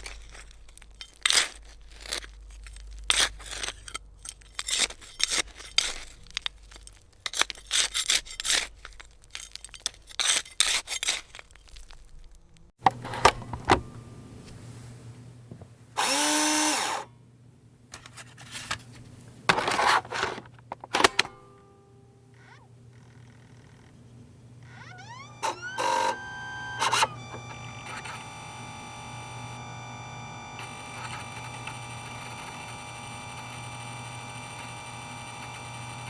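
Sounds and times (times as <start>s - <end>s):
disk drive clicking: 12.8s - 14.0s, 23.4s - 36.0s
disk drive hum: 12.8s - 17.1s, 19.2s - 36.0s
disk spinning up whine: 16.0s - 17.0s, 24.6s - 36.0s.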